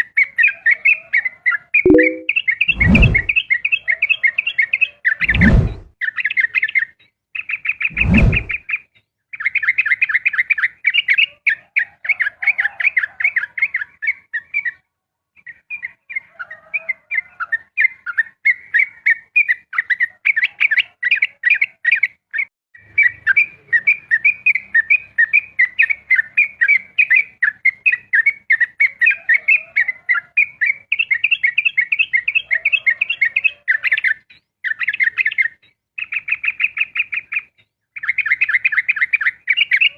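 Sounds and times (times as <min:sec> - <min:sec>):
loud thump: 0:05.2 - 0:05.9
bird singing chattering song: 0:33.2 - 0:39.9.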